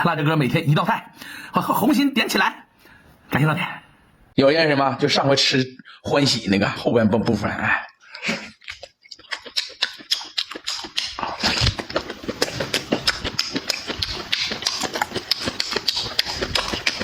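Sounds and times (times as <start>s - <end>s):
wet chewing and mouth clicks: 8.1s - 17.0s.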